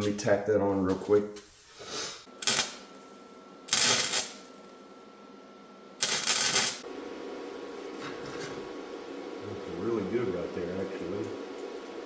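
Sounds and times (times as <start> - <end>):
steady low hum: 2.1 - 12.0
welder crackling: 2.4 - 2.9, 3.7 - 4.6, 6.0 - 6.8.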